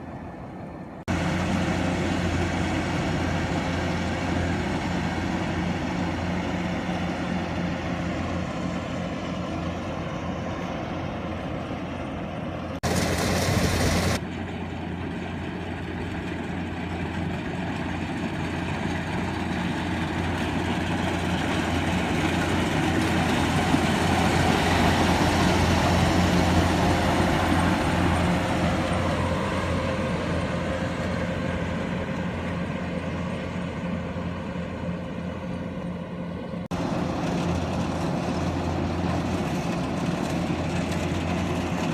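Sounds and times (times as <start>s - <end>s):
harvesting machine engine running: 1.1s - 41.9s
loud burst of hiss: 12.8s - 14.2s.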